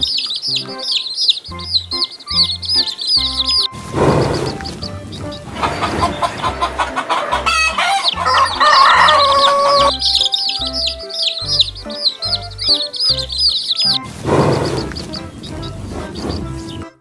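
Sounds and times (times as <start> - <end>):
rapid high-pitched chirping: 0.0 - 15.8
rooster crowing: 5.6 - 11.4.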